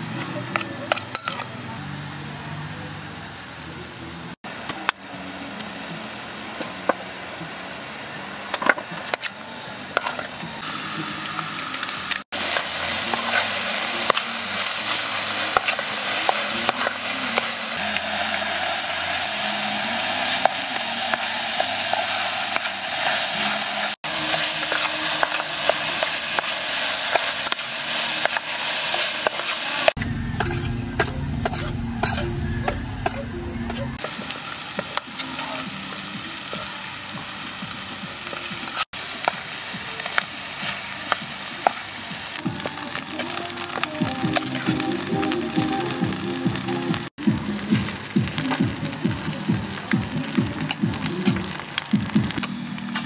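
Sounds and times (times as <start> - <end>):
meat sizzling in a pot: 4.5 - 33.2, 34.0 - 53.0
low rumbling noise: 30.0 - 34.0.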